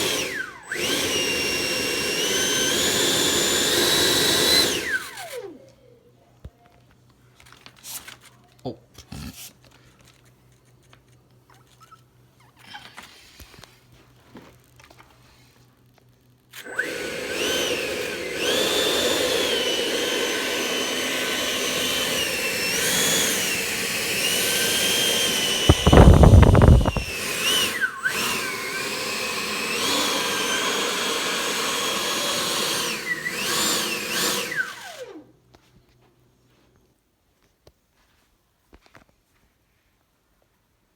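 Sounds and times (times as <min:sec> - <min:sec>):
electric fan motor whine: 0:16.6 - 0:35.3.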